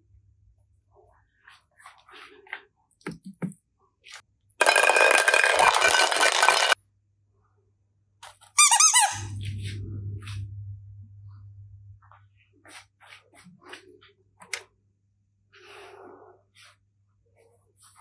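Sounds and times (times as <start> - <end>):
steady low hum: 9.2 - 12.5.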